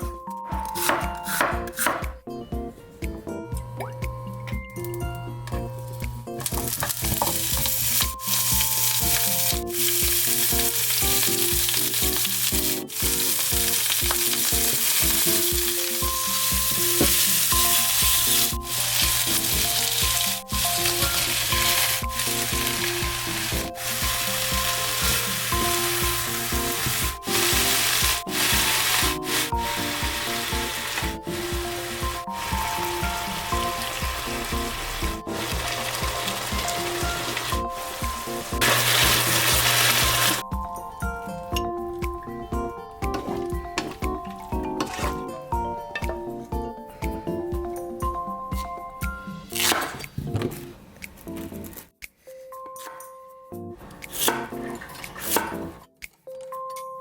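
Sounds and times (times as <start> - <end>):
light background music: 0.0 - 57.0
food sizzling in oil: 6.6 - 40.4.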